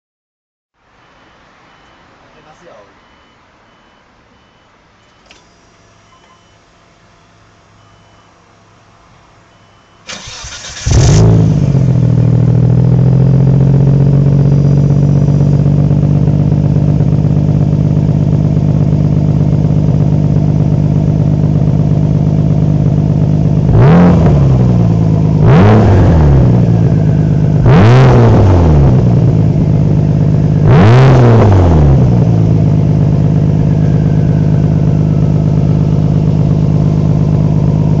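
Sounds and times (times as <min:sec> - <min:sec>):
car engine idling: 0:06.7 - 0:38.0
engine throttle blips: 0:09.5 - 0:38.0
car engine starting: 0:10.0 - 0:38.0.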